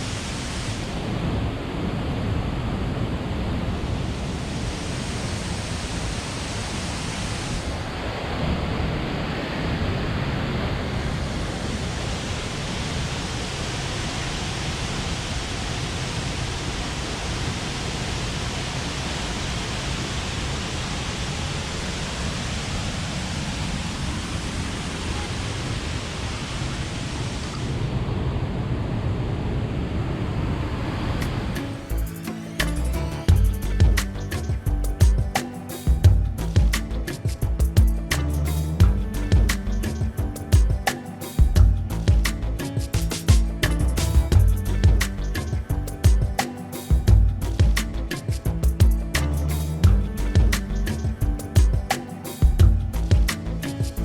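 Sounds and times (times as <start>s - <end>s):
waterfall thundering: 0.0s - 28.4s.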